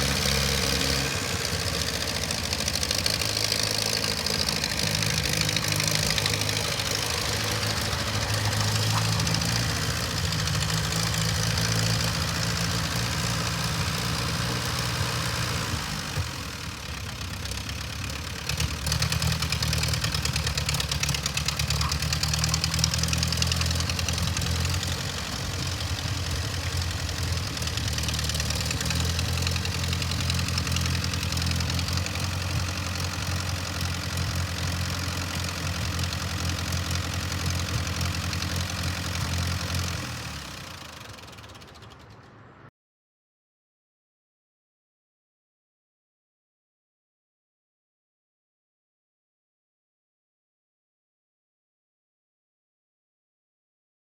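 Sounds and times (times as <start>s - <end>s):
tractor engine idling: 0.0s - 42.6s.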